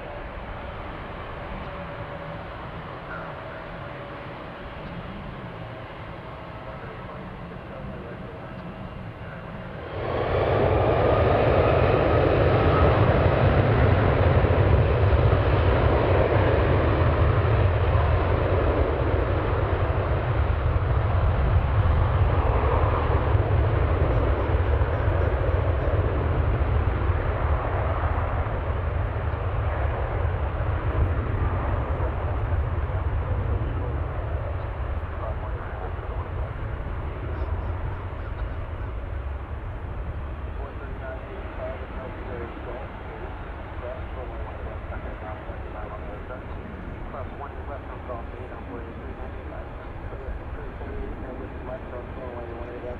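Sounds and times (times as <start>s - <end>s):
jet airliner engine rumble: 0.0s - 52.9s.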